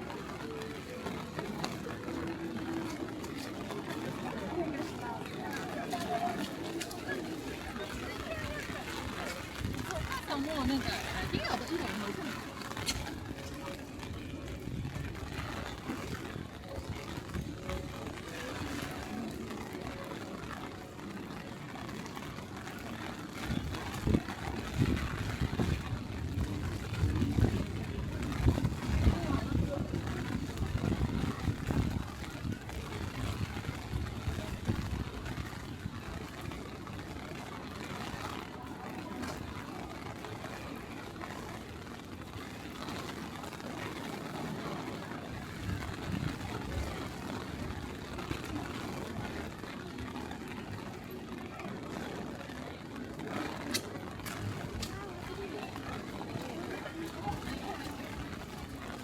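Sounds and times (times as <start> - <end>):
hiss of rain: 0.0 - 59.0
street noise: 0.0 - 59.0
wind buffeting microphone: 5.2 - 19.5, 22.1 - 51.2.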